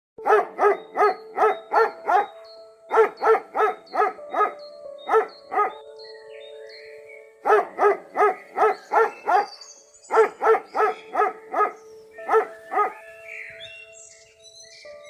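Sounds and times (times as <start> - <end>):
dog barking: 0.2 - 2.3, 2.9 - 5.7, 7.4 - 9.5, 10.1 - 13.0
music with held notes: 0.2 - 15.0.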